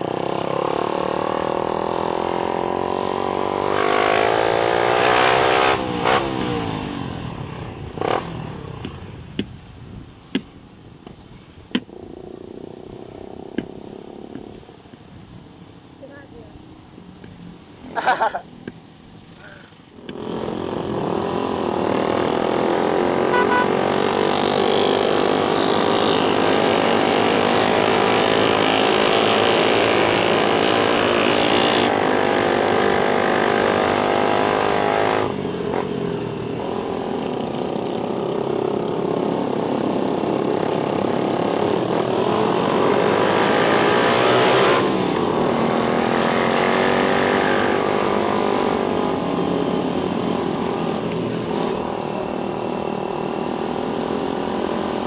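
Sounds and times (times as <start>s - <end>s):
motorcycle engine revving: 0.0s - 9.2s, 20.0s - 55.0s.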